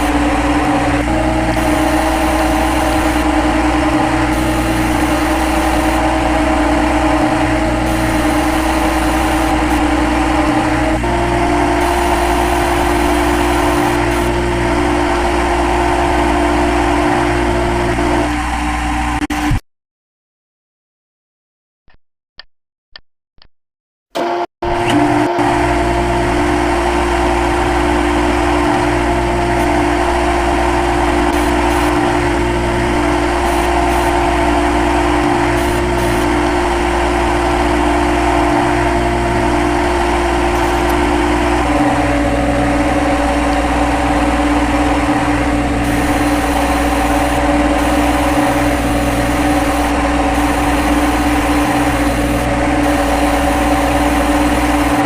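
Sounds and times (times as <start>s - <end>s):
lathe machine whine: 0.0s - 19.3s, 24.2s - 55.0s.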